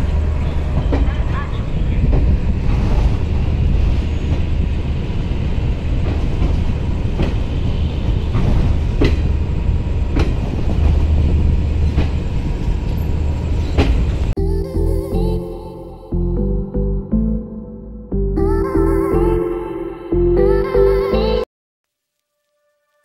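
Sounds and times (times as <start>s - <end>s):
train coach rumble: 0.0s - 14.3s
train wheels clacking on rail joints: 0.0s - 14.3s.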